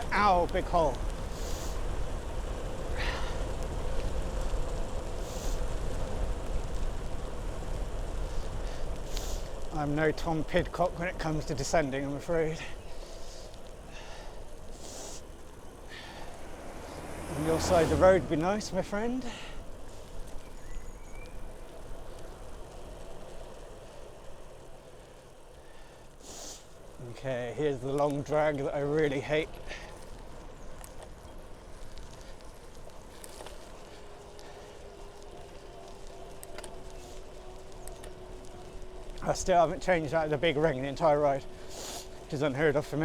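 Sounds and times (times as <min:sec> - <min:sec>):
wind buffeting microphone: 0:00.0 - 0:25.5
bicycle tyres on wet road: 0:00.0 - 0:43.0.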